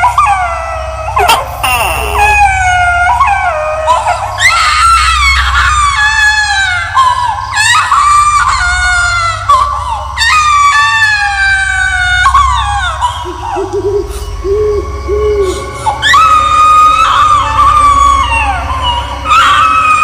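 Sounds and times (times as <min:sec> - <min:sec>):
eerie high-pitched screams: 0:00.0 - 0:20.0
steady low drone: 0:01.0 - 0:04.3.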